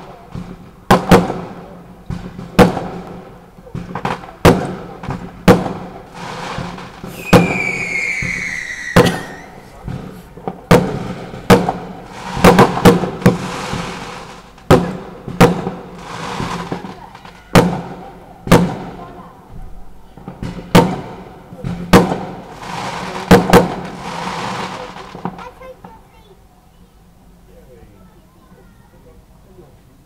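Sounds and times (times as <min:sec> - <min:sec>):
firework hissing and crackling: 0:00.0 - 0:19.5, 0:20.3 - 0:26.4
fireworks bangs: 0:00.0 - 0:26.4
firework whistle: 0:06.2 - 0:09.8.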